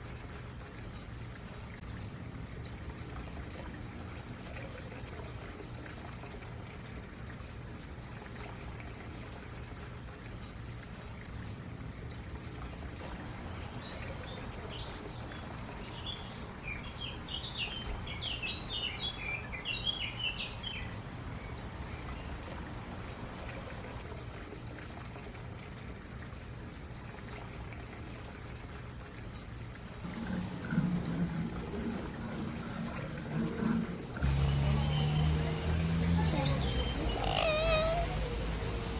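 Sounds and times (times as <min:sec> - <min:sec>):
stream water trickling: 0:00.0 - 0:38.9
bird chirping: 0:34.6 - 0:38.9.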